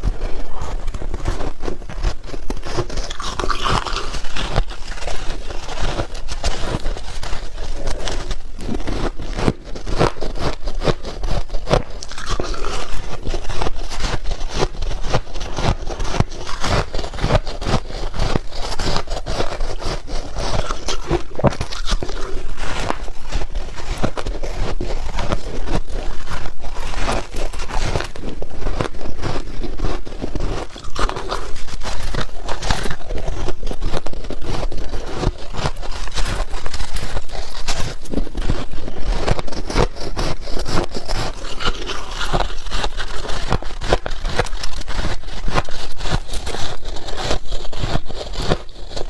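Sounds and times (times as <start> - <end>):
ice being chewed: 0.0 - 49.0.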